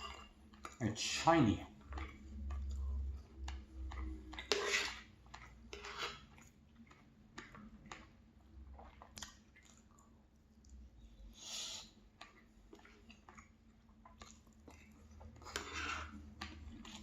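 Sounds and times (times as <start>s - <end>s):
person chewing food: 0.0s - 0.9s, 1.6s - 17.0s.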